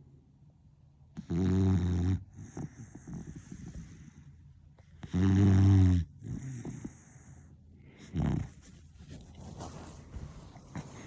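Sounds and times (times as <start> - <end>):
dog snoring: 1.1 - 11.0
dog breathing softly: 2.2 - 5.5, 6.1 - 11.0.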